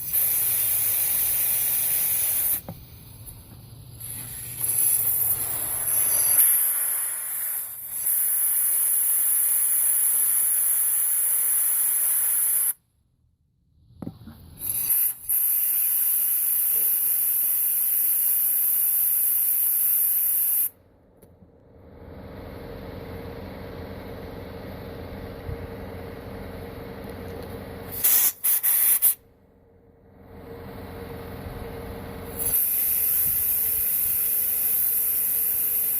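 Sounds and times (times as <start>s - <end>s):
air blower hissing: 0.0s - 12.8s, 27.8s - 29.2s, 32.2s - 35.9s.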